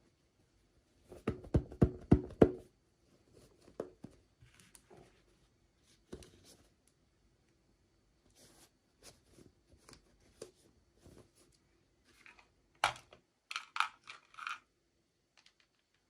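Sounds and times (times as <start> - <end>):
knocks on hollow object: 1.2 - 2.6.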